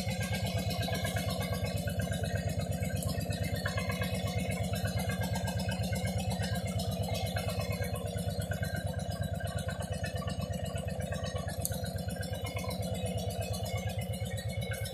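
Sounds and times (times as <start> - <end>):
motorcycle engine idling: 0.0 - 14.9.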